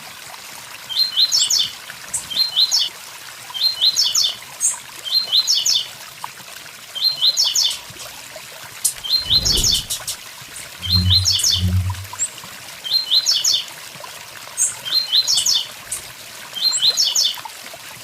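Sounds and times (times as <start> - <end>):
bird singing short phrase: 9.0 - 10.1, 10.8 - 12.2.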